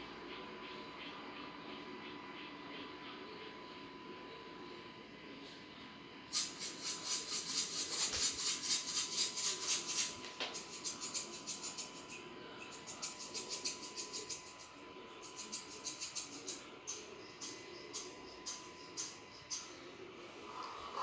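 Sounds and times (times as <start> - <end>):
rapid high-pitched chirping: 6.3 - 20.0.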